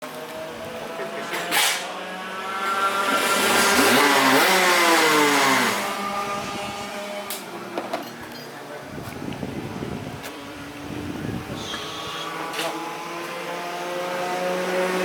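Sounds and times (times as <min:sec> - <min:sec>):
kart engine revving past: 0:00.2 - 0:07.8, 0:11.2 - 0:15.0.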